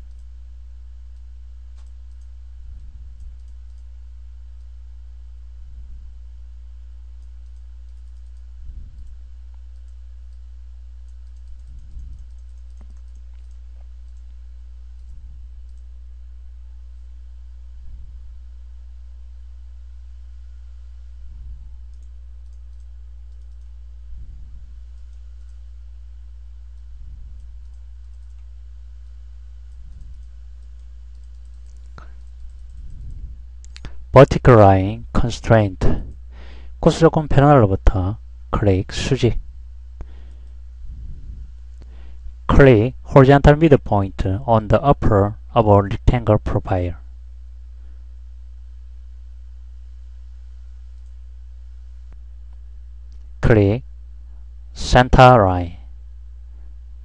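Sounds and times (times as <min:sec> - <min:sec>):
computer mouse clicks: 0:00.0 - 0:00.3, 0:01.1 - 0:04.0, 0:07.2 - 0:15.9, 0:21.3 - 0:25.6, 0:26.7 - 0:34.0
low electrical hum: 0:00.0 - 0:57.0.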